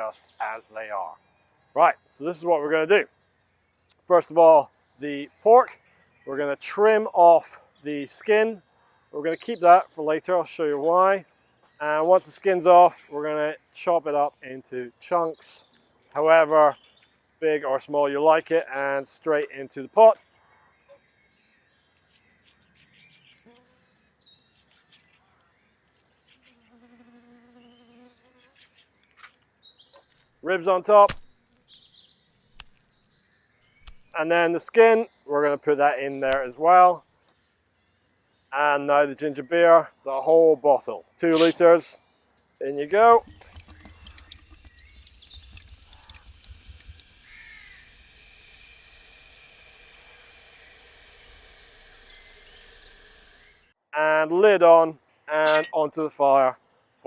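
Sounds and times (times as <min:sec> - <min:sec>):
flying insect buzzing: 0:23.4 - 0:23.8, 0:26.2 - 0:28.7, 0:43.2 - 0:53.7
bird cawing: 0:43.7 - 0:53.5.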